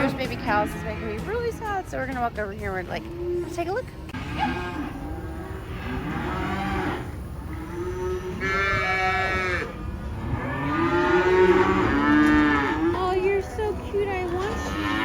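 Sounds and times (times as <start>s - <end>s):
calves bawling: 0.0s - 15.0s.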